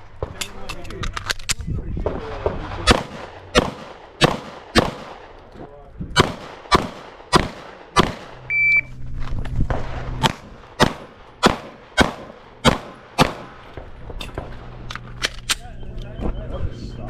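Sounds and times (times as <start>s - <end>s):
pistol shots: 2.1s - 5.4s, 6.2s - 8.5s, 9.7s - 14.6s
short electronic beep: 8.5s - 8.9s.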